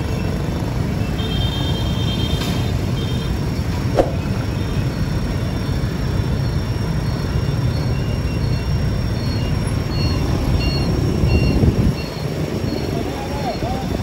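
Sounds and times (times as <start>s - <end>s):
passing train rumble: 3.4s - 7.0s.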